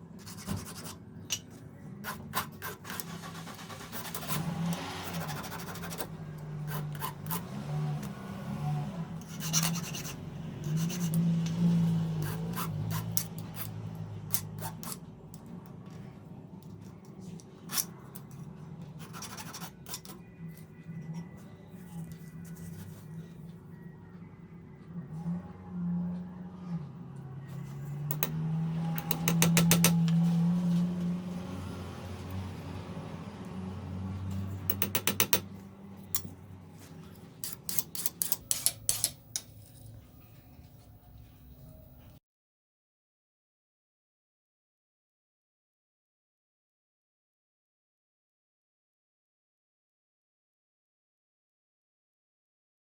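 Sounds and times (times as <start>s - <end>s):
hand tools scraping: 9.2s - 11.6s, 37.0s - 40.8s.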